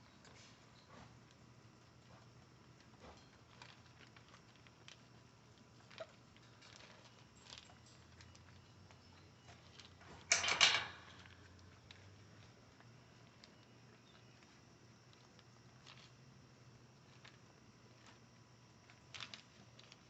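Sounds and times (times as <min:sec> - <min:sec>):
puppies pattering: 0:03.0 - 0:10.3.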